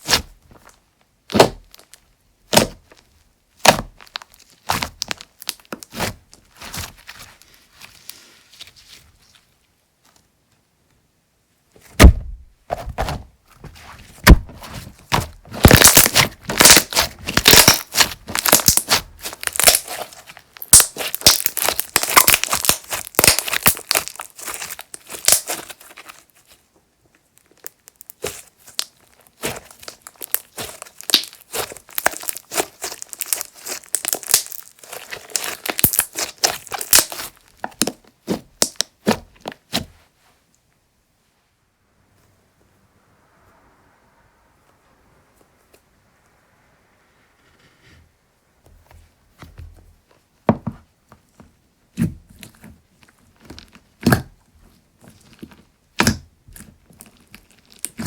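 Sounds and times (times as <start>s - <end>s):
slime crackling and popping: 1.3s - 7.0s, 14.2s - 26.4s, 27.4s - 39.8s, 55.0s - 58.0s.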